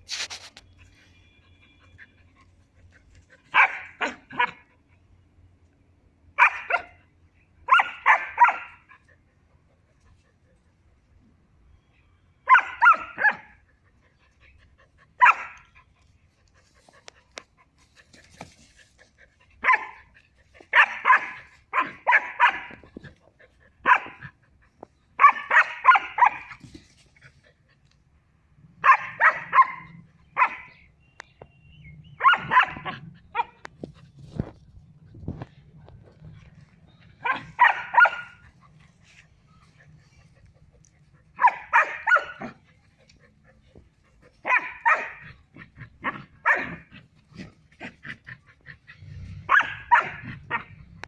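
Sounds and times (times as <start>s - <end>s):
puppy yapping: 32.2s - 33.7s, 37.2s - 38.5s, 41.4s - 42.6s, 44.4s - 46.9s, 49.0s - 50.8s.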